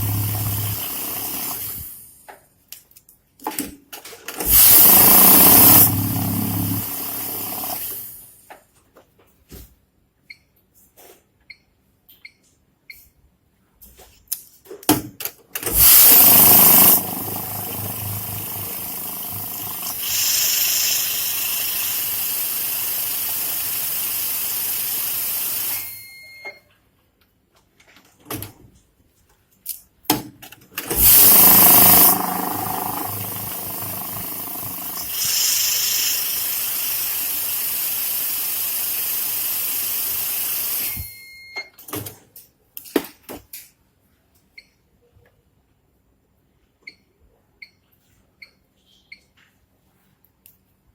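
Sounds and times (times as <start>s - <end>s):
banknote counting machine whirring: 0.0s - 1.9s, 4.4s - 8.1s, 15.6s - 25.9s, 30.8s - 41.0s.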